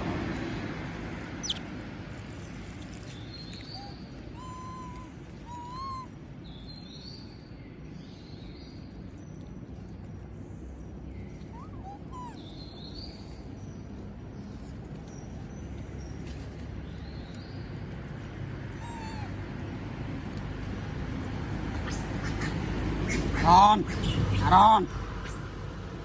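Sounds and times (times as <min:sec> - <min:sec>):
monkey squeaky calls: 0:01.4 - 0:01.7, 0:03.7 - 0:06.1, 0:11.5 - 0:12.4, 0:18.8 - 0:19.3, 0:21.4 - 0:25.6
low background rumble: 0:07.4 - 0:26.0.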